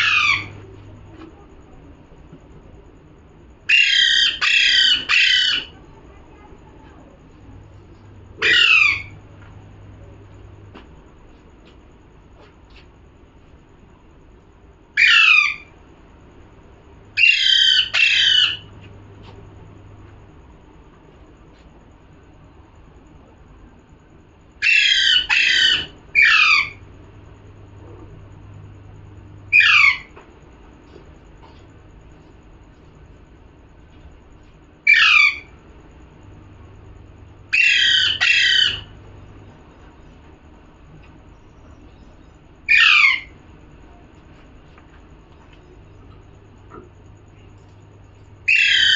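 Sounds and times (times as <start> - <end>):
parrot squawking: 0.0 - 0.6, 3.7 - 5.8, 8.4 - 9.1, 15.0 - 15.7, 17.2 - 18.7, 24.6 - 26.8, 29.5 - 30.1, 34.9 - 35.5, 37.5 - 38.9, 42.7 - 43.4, 48.5 - 48.9.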